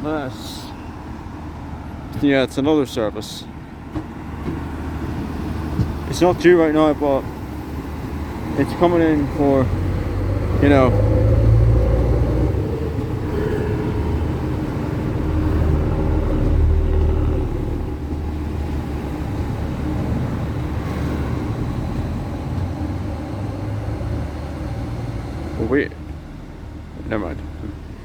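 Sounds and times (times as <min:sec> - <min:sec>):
diesel train engine rumble: 0:00.0 - 0:28.0.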